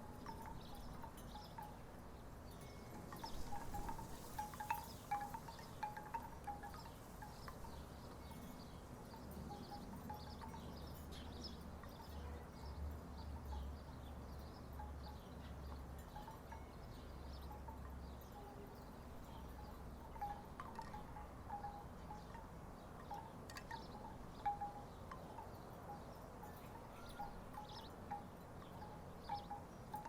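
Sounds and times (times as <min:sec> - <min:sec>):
wind rumble on microphone: 0:00.0 - 0:15.8
wooden wind chimes knocking: 0:02.6 - 0:07.7, 0:19.6 - 0:25.4.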